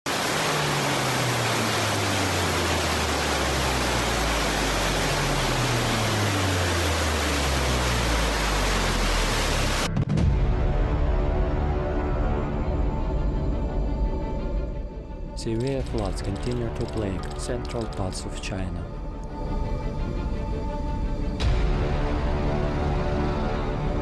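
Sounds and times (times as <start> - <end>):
rushing floodwater roar: 0.0 - 9.9
low drone: 0.1 - 18.2.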